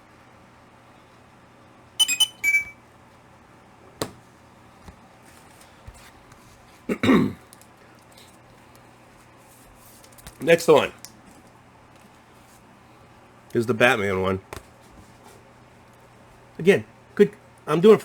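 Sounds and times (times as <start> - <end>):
short squeaky sounds: 2.0 - 2.8
person coughing: 6.9 - 7.4.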